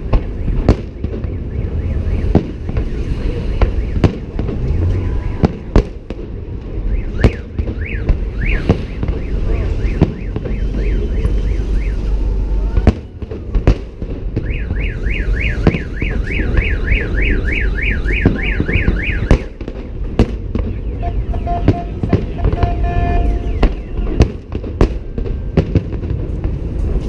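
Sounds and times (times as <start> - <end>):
firework bangs: 0.0 - 27.0
car alarm warbling: 0.2 - 5.8, 6.7 - 12.4, 14.4 - 19.6, 20.6 - 24.3
low rumble: 1.8 - 7.1.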